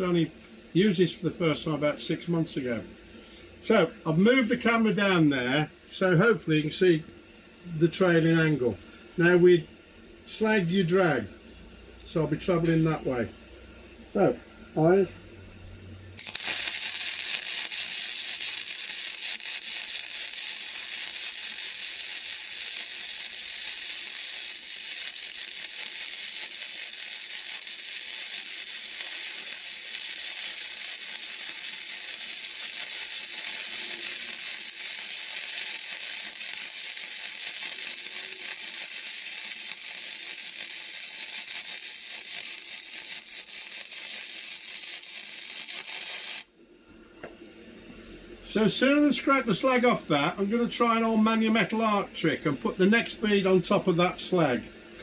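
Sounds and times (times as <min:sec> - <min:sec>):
welding arc crackling hiss: 0:16.2 - 0:46.5.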